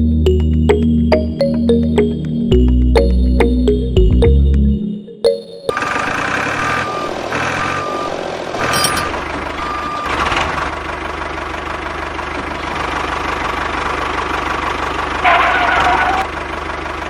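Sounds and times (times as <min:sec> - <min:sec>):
engine running: 0:00.0 - 0:17.0
reversing alarm beeping: 0:03.0 - 0:10.3.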